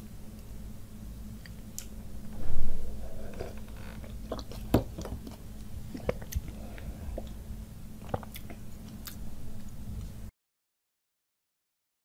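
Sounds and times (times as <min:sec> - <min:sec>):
chewing and wet mouth sounds: 0:04.0 - 0:07.4, 0:08.0 - 0:10.1.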